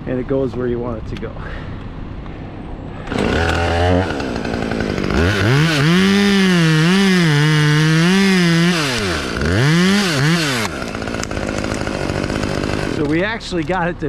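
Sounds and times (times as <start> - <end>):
chainsaw revving and cutting wood: 3.1 - 13.8.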